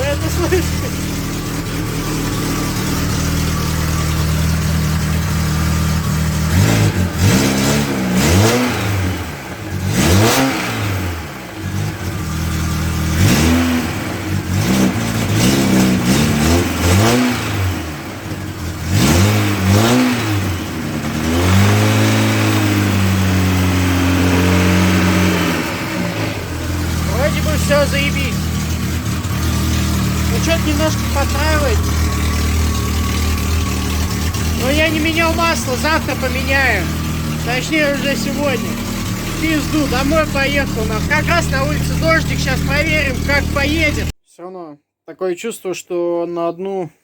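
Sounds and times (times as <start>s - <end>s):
car engine idling and revving: 0.0s - 44.2s.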